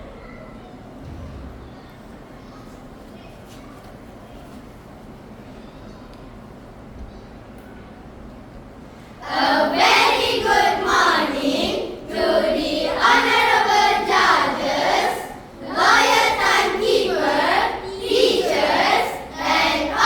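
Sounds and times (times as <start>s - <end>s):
children singing together: 9.2s - 20.0s.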